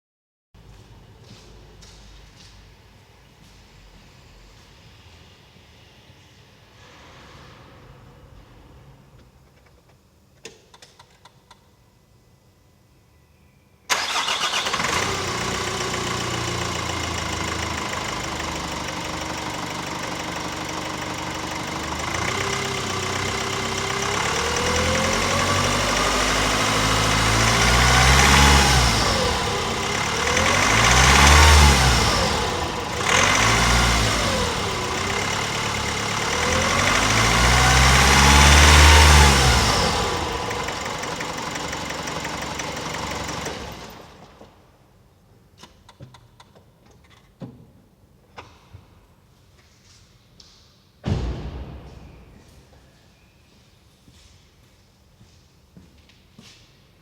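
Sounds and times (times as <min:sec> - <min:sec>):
diesel engine idling and revving: 0:13.9 - 0:44.5.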